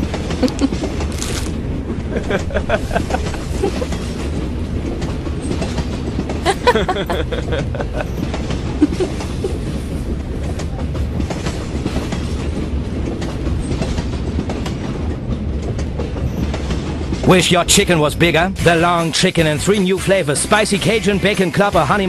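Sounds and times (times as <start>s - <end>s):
train carriage rumbling and rattling: 0.0s - 22.0s
woman laughing: 0.4s - 0.8s, 2.1s - 4.1s, 6.4s - 9.8s.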